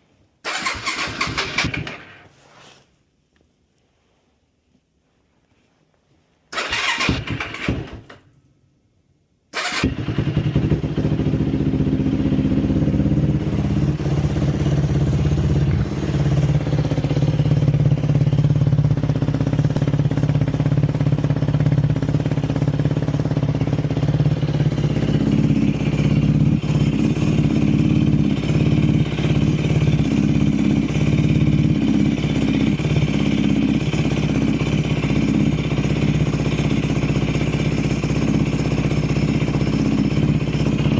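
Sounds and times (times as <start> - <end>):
quad engine starting and running: 0.4 - 2.3, 6.5 - 8.2, 9.6 - 40.9.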